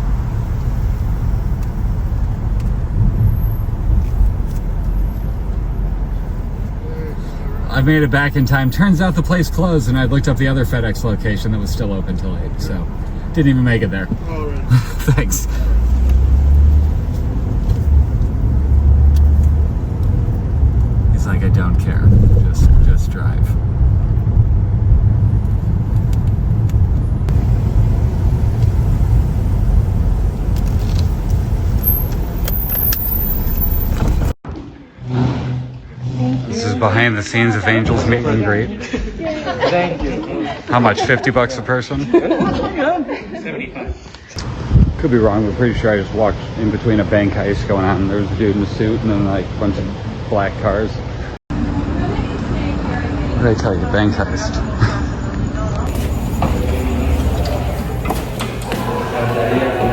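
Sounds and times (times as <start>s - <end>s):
car engine rumble: 0.0s - 35.0s, 55.2s - 59.9s
road noise: 0.0s - 39.0s, 44.0s - 59.9s.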